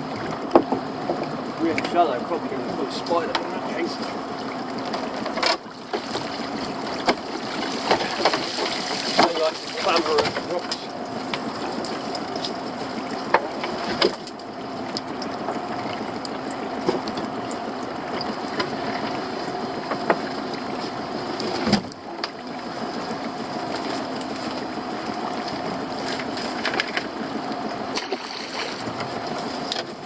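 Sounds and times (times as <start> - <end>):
clicks and knocks on boat: 0.0 - 2.2, 3.0 - 30.0
outboard motor running: 0.0 - 30.0.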